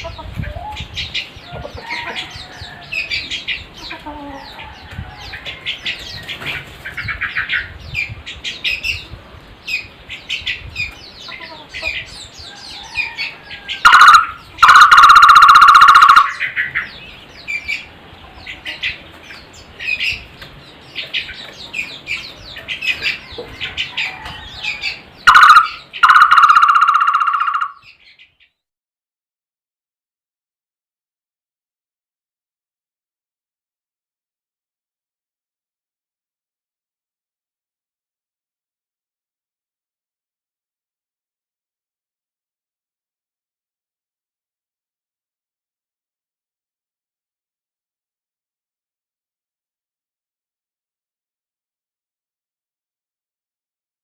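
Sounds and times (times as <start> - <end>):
birds chirping and trilling: 0.0 - 28.6
loud steady bird call: 11.2 - 17.9, 22.8 - 28.3.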